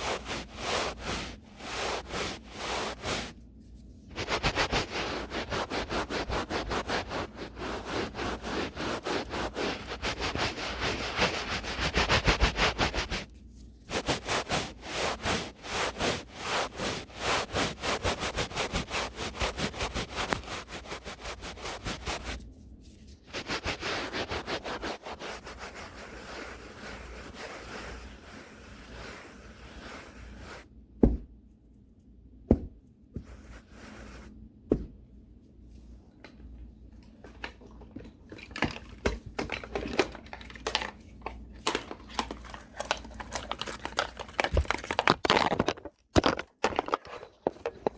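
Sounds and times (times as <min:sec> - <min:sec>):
brush rasping across microphone: 0:04.2 - 0:13.3.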